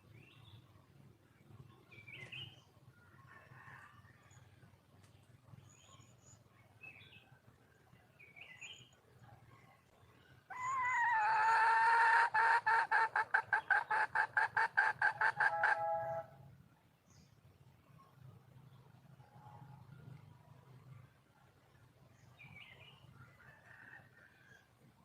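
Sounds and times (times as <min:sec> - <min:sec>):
faint small bird chirps: 0:01.9 - 0:02.7, 0:05.5 - 0:07.4
junglefowl hen calling: 0:10.5 - 0:16.4.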